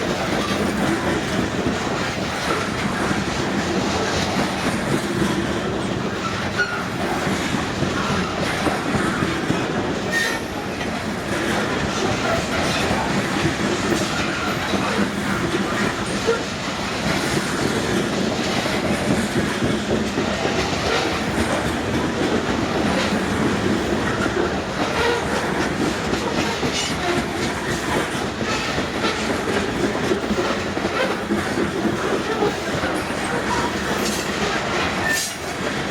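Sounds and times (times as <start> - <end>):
wheels clicking over rail joints: 0.0 - 35.9
wheels rumbling on rail: 0.0 - 35.9.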